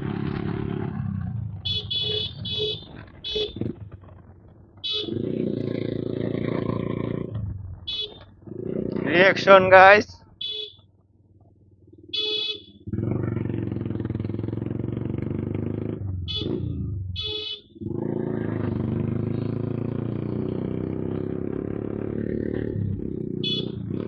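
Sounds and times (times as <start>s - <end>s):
motorcycle exhaust note: 0.0s - 10.8s, 11.5s - 24.0s.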